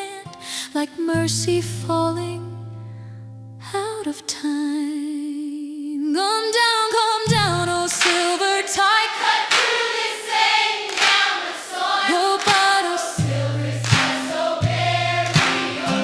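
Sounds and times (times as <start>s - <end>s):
choir singing: 8.0s - 16.0s.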